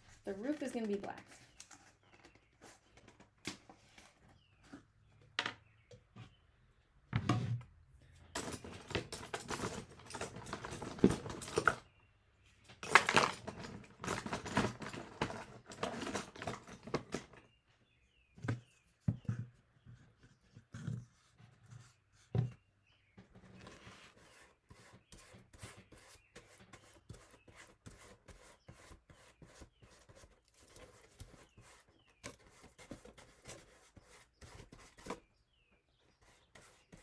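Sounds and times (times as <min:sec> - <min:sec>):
paintbrush scrubbing on cardboard: 0:23.8 - 0:35.1.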